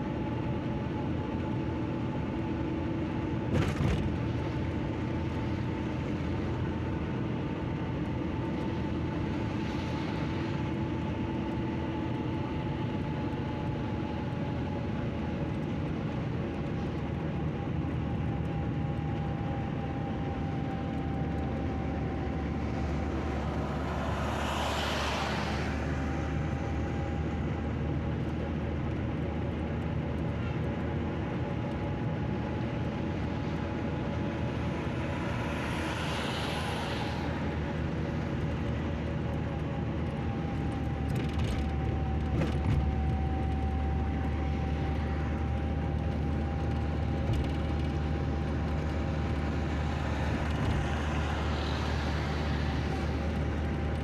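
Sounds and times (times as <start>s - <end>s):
engine hum: 0.0s - 54.0s.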